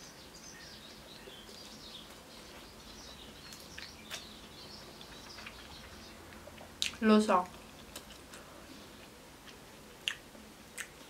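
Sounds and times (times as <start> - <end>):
faint bird chirping: 0.0 - 6.6
steady low hiss: 0.0 - 11.0
chewing food: 1.2 - 11.0
wet mouth clicks: 10.0 - 10.2.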